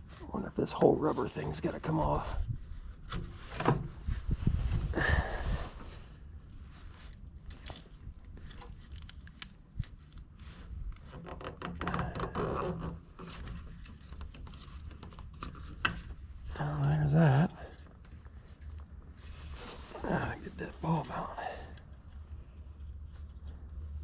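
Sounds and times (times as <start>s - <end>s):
hands clicking and scraping plastic: 7.5s - 10.3s, 10.9s - 16.2s.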